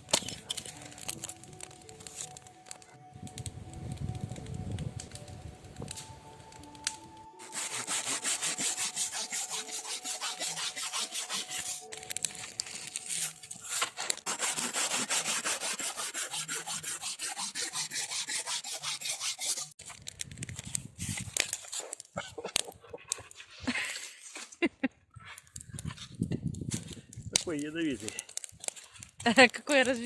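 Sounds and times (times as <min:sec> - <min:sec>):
saw cutting through wood: 0:07.2 - 0:19.8.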